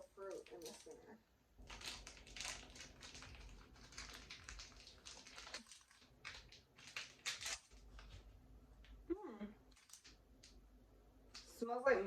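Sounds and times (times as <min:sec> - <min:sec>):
plastic candy wrapper crinkling: 0:01.6 - 0:09.0, 0:09.7 - 0:10.6.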